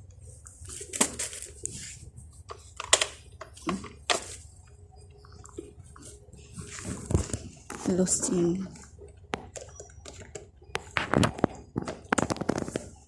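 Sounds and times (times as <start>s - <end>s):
low steady hum: 0.0s - 13.0s
sharp clicks and crackles: 8.7s - 13.0s.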